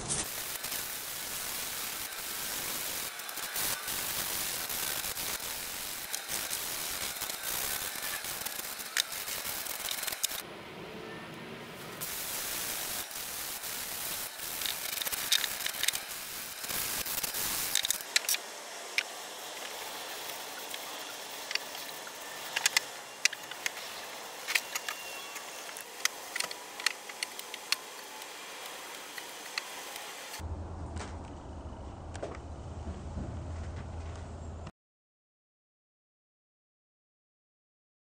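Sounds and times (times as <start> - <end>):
sandpaper rasping on wood: 0.2 - 10.4.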